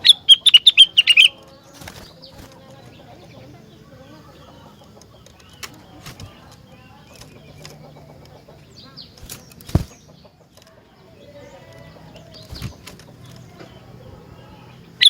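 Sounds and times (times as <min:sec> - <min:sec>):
faint bird chirps: 0:00.0 - 0:15.0
bird fluttering and hopping: 0:01.4 - 0:03.0, 0:05.1 - 0:07.8, 0:09.1 - 0:10.8, 0:11.8 - 0:13.7.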